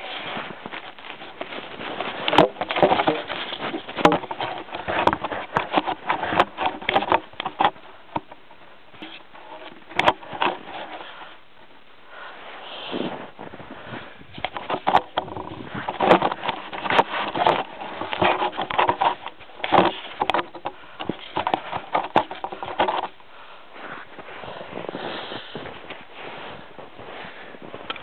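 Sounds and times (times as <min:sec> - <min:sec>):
handling clicks and taps: 0:14.4 - 0:23.2.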